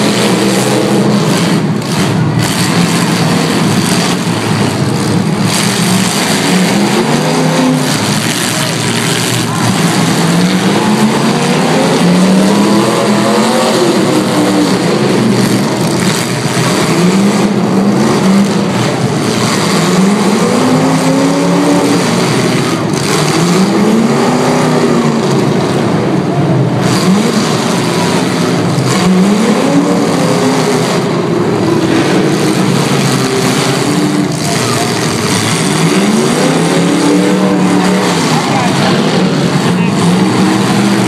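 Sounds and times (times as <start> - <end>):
car engines revving hard: 0.0 - 41.0
din of engines and tyres: 0.0 - 41.0.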